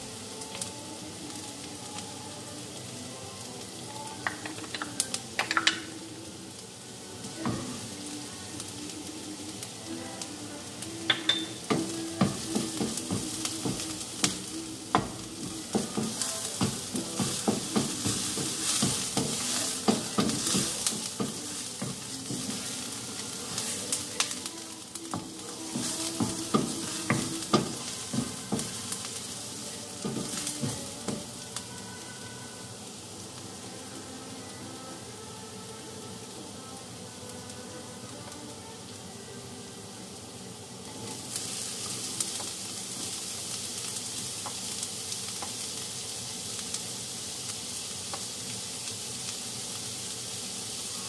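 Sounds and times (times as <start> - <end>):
onion sizzling in hot oil: 0.0 - 51.0
wooden spatula scraping a pan: 11.7 - 29.4.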